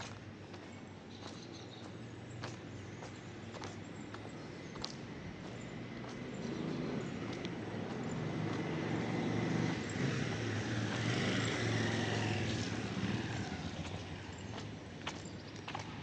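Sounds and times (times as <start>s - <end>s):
engine passing by: 0.0s - 16.0s.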